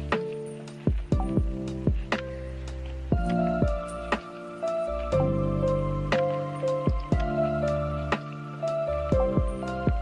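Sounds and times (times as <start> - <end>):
struck notes over deep bass: 9.1 - 10.0.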